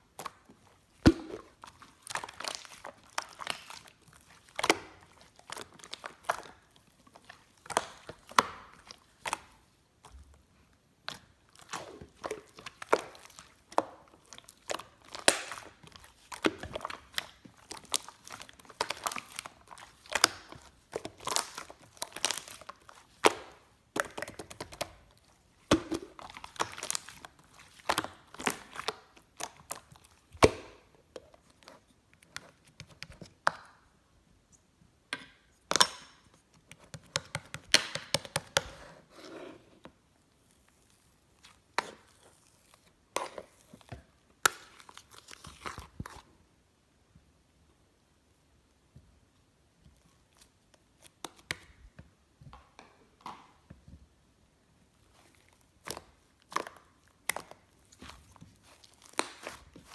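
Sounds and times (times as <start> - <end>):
slime popping and crackling: 0.1 - 9.8, 11.1 - 30.9, 55.1 - 59.9.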